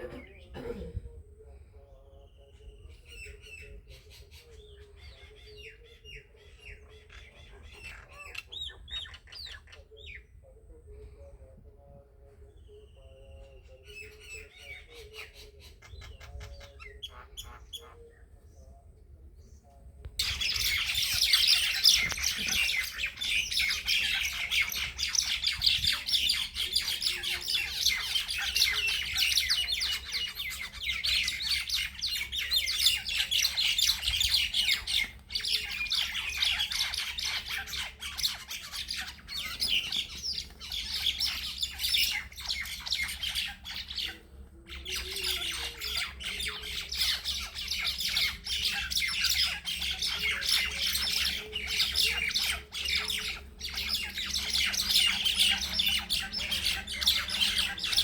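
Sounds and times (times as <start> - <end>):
faint bird chirps: 0.0 - 58.0
birds squawking in a fight: 5.0 - 10.2, 20.2 - 58.0.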